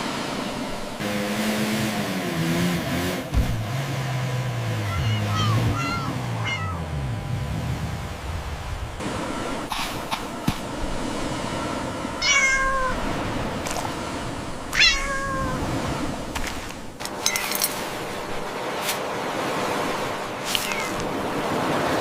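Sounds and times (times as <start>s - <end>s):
cat meowing: 4.9s - 6.9s, 12.2s - 13.0s, 14.7s - 15.7s, 20.5s - 21.0s.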